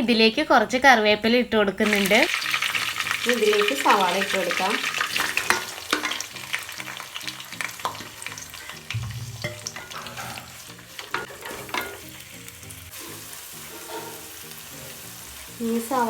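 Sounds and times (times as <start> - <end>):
onion sizzling in hot oil: 1.8 - 16.0
utensil scraping a pan: 4.9 - 12.2, 12.9 - 15.2.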